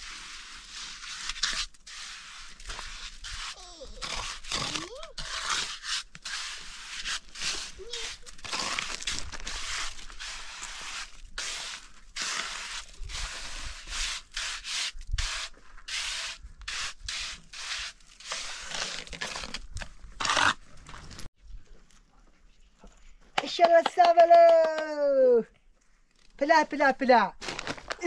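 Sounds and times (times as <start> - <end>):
rough scraping and rubbing: 0.0 - 21.3.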